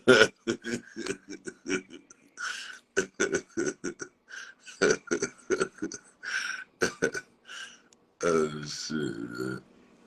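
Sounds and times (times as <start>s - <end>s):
man speaking in broken bursts: 0.0s - 7.2s, 8.2s - 9.6s.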